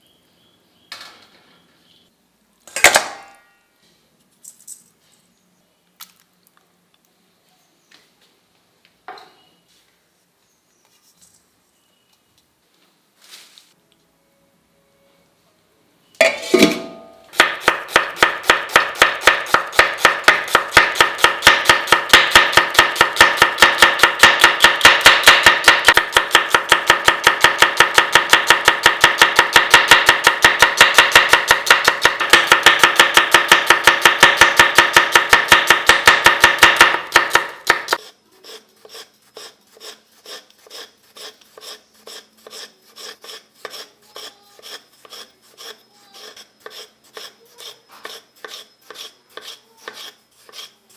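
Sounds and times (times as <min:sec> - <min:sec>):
knife chopping on cutting board: 0:17.4 - 0:38.1.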